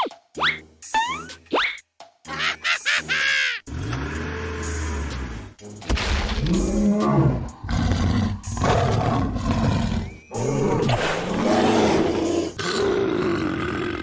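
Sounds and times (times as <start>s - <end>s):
deep cartoon creature roars: 6.5s - 14.0s.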